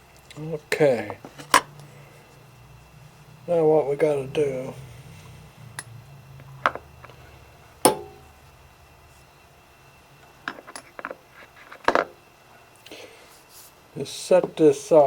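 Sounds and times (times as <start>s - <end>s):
metal tools clicking and knocking: 10.4s - 12.2s.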